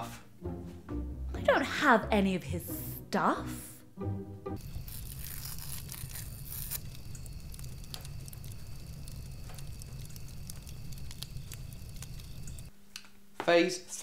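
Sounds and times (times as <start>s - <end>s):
fire crackling: 4.6s - 12.7s
low fire rumble: 4.6s - 12.7s.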